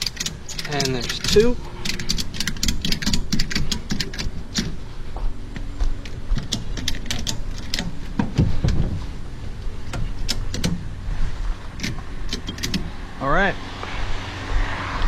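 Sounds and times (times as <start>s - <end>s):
ratchet strap clicks: 0.0s - 4.8s, 6.4s - 8.0s, 9.9s - 10.8s, 11.8s - 12.9s
low steady rumble: 0.0s - 15.0s.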